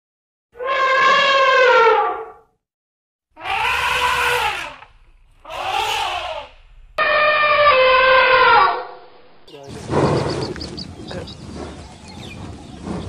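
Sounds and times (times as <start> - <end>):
elephant calves trumpeting: 3.4 - 8.9.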